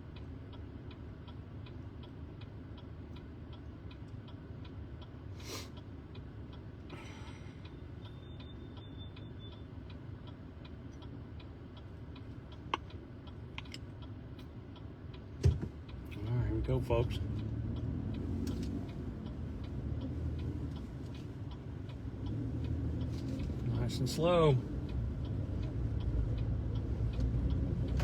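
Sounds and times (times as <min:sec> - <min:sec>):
turn signal ticking: 0:00.0 - 0:28.0
idling engine hum: 0:15.7 - 0:28.0.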